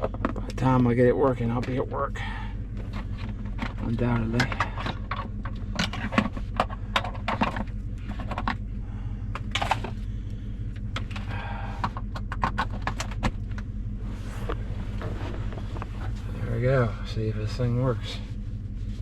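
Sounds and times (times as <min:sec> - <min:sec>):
pickup truck idling: 0:00.0 - 0:19.0
hands rustling fabric wheel cover: 0:14.0 - 0:16.5.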